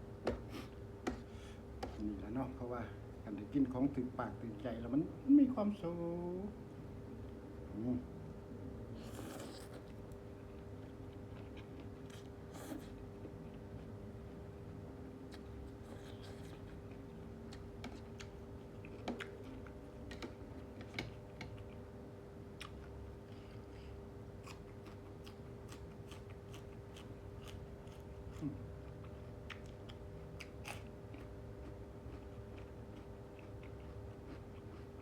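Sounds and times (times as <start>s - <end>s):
person chewing food: 9.0s - 14.0s, 15.2s - 21.9s, 22.5s - 35.0s.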